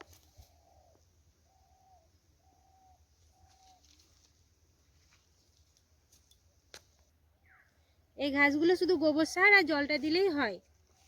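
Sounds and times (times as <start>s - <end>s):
faint bird calls: 0.0s - 4.5s, 7.4s - 8.1s.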